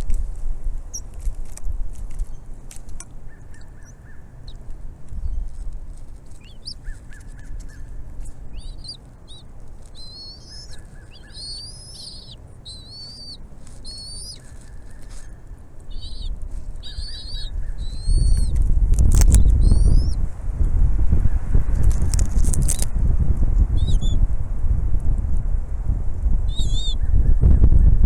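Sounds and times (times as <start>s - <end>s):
eagle chirping whistles: 6.4s - 7.2s, 8.5s - 9.4s, 10.0s - 14.4s, 15.9s - 18.5s, 19.4s - 20.2s, 23.8s - 24.2s, 26.5s - 27.1s.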